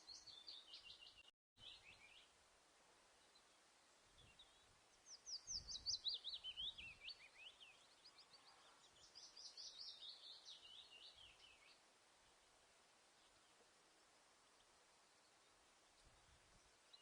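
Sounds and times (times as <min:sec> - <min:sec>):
faint outdoor hiss: 0:00.0 - 0:17.0
songbird chirping: 0:00.0 - 0:17.0.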